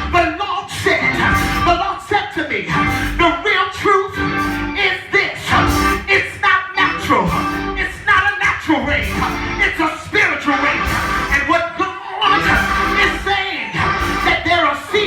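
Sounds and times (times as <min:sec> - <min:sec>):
person singing: 0:00.0 - 0:15.0
instrumental accompaniment: 0:01.0 - 0:02.0, 0:02.7 - 0:03.4, 0:04.2 - 0:06.2, 0:06.8 - 0:08.0, 0:09.0 - 0:09.8, 0:10.6 - 0:11.5, 0:12.2 - 0:14.6.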